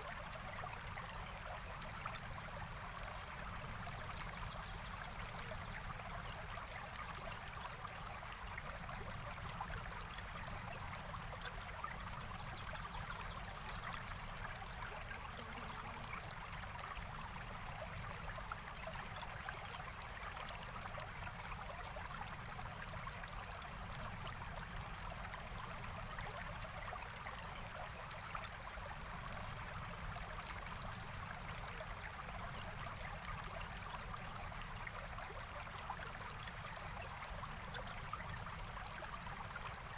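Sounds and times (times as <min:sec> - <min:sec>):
stream flowing: 0:14.2 - 0:21.4.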